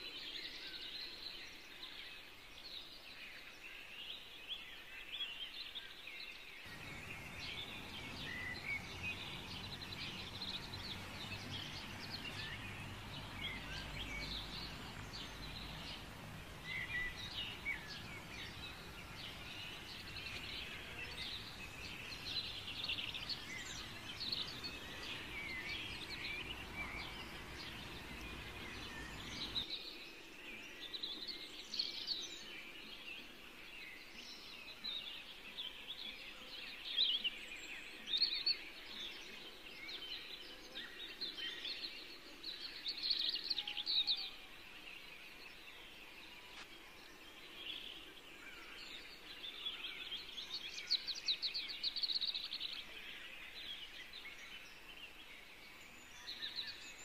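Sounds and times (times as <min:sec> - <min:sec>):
small birds twittering: 0:00.0 - 0:57.0
faint low hum: 0:06.7 - 0:29.6.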